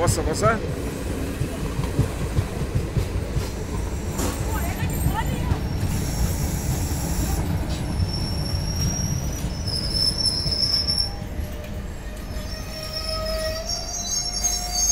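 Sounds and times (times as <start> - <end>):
train wheels rumbling on rail: 0.0 - 14.9
lower wheel squeal: 5.4 - 11.3, 12.2 - 14.9
high-pitched wheel squeal: 7.9 - 11.3, 12.2 - 14.9.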